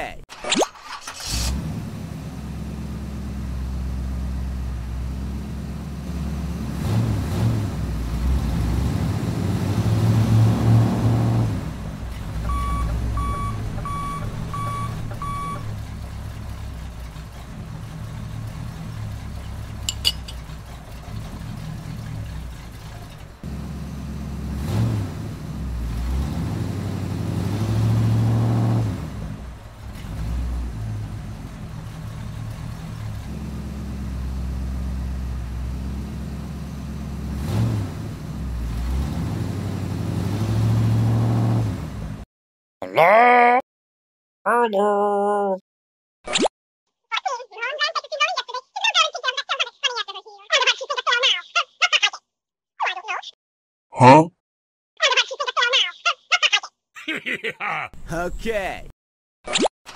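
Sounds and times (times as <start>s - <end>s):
tractor engine revving: 0.8s - 42.2s
short beeps: 12.5s - 15.6s.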